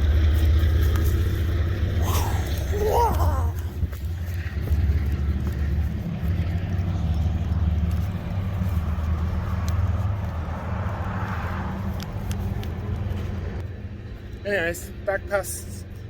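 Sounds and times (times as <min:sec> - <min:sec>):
train passing rumble: 0:03.6 - 0:15.1.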